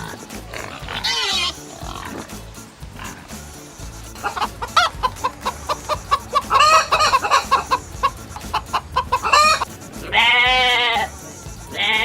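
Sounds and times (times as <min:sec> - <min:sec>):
chicken squawks: 0:00.0 - 0:02.4, 0:03.0 - 0:12.0
chicken clucking: 0:03.0 - 0:12.0.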